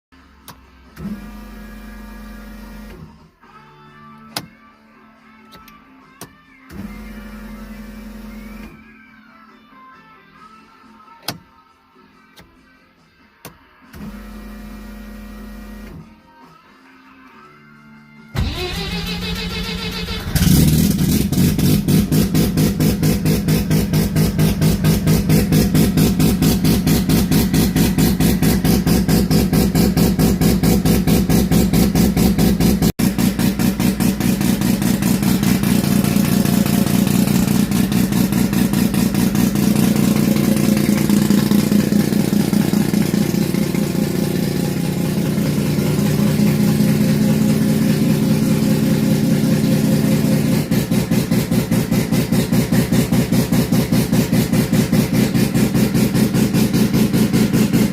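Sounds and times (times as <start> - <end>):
rotary engine idling: 33.1 - 57.9.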